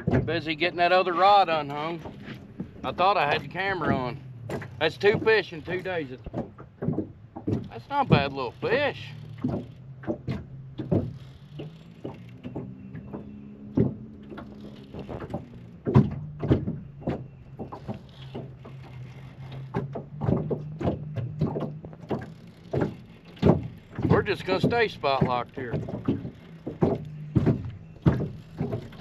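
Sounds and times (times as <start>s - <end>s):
electric trolling motor humming: 0.0s - 29.0s
knocks and clunks against boat: 0.0s - 29.0s.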